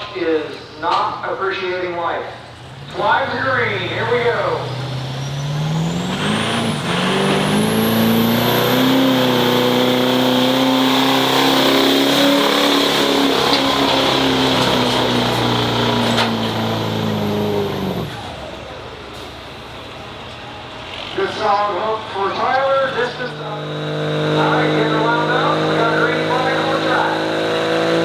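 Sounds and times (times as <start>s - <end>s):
diesel truck engine revving: 0.0s - 28.0s.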